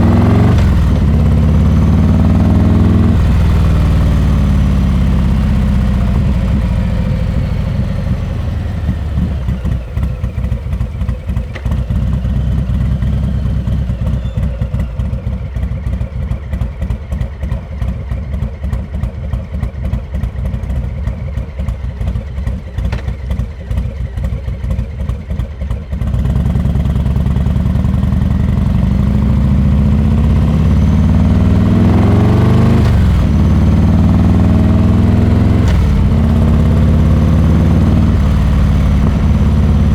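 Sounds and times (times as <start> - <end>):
motorcycle engine revving: 0.0 - 17.6, 26.0 - 39.9.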